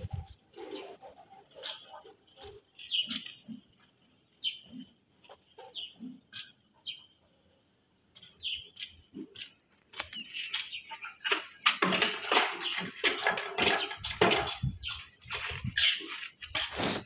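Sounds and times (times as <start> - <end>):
falling bird chirps: 0.0 - 7.2, 8.2 - 17.0
dense clicks and scraping: 8.2 - 17.0.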